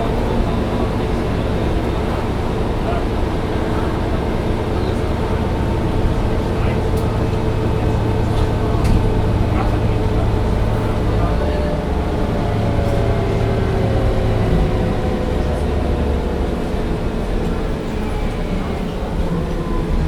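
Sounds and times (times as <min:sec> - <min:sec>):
bus diesel engine drone: 0:00.0 - 0:20.0
whining drivetrain: 0:00.0 - 0:20.0.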